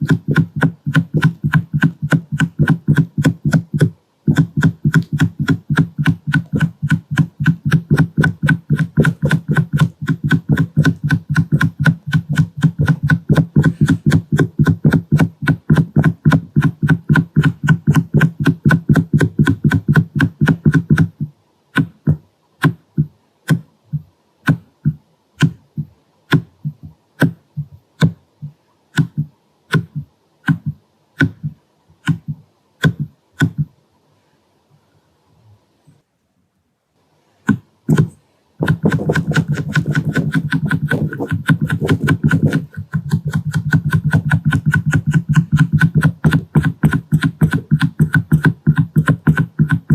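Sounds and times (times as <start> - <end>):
taps on camera lens: 0.0 - 21.2, 37.5 - 49.9.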